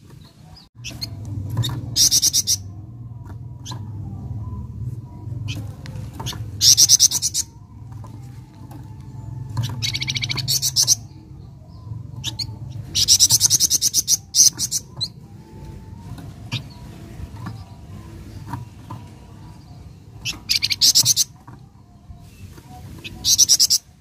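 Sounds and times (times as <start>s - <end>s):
low steady hum: 0.0s - 24.0s
songbird singing high notes: 9.6s - 11.3s.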